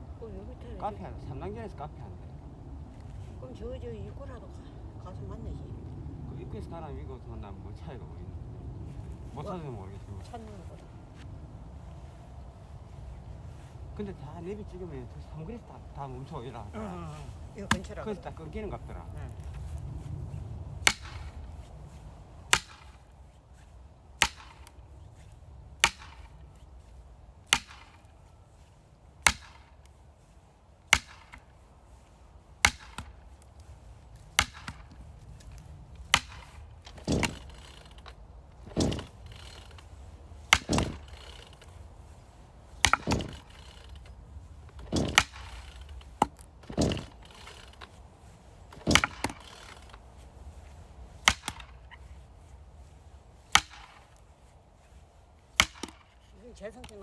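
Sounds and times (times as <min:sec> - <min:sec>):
axe chopping firewood: 0:15.8 - 0:18.6, 0:20.8 - 0:21.7, 0:22.5 - 0:23.0, 0:24.2 - 0:24.9, 0:25.7 - 0:26.4, 0:27.4 - 0:28.2, 0:29.2 - 0:30.0, 0:30.9 - 0:52.2, 0:53.4 - 0:54.3, 0:55.4 - 0:56.2.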